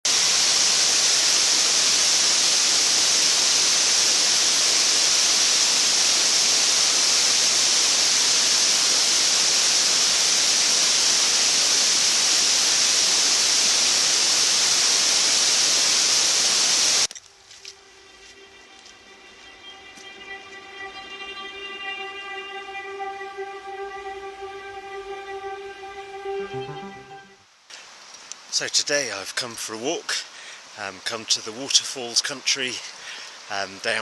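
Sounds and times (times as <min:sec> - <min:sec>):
waterfall rushing: 0:00.1 - 0:17.1.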